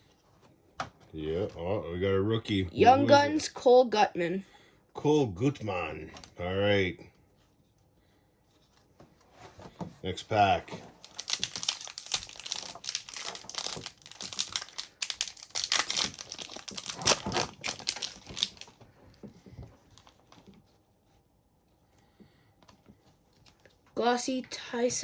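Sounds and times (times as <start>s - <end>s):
card pack wrapper crinkling and tearing: 10.9s - 18.8s.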